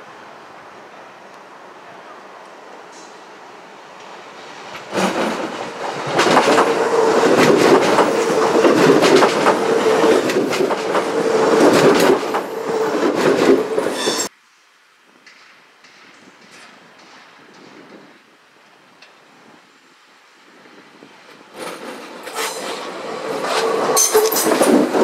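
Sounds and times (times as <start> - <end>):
train hum: 0.0 - 14.3, 15.2 - 25.0
train wheels clicking over joints: 4.0 - 14.3, 15.2 - 18.1, 21.4 - 25.0.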